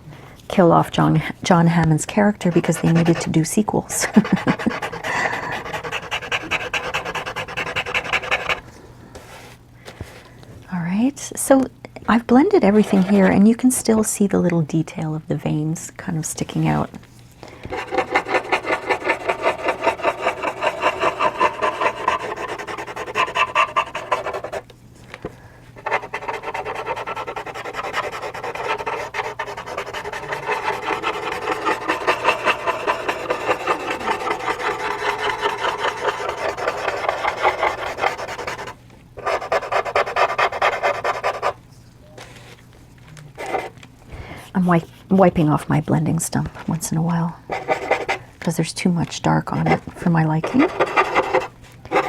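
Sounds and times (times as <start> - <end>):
blending stump rubbing on paper: 2.4 - 8.6, 12.6 - 13.5, 17.7 - 24.7, 25.8 - 41.6, 43.4 - 43.8, 49.6 - 52.0.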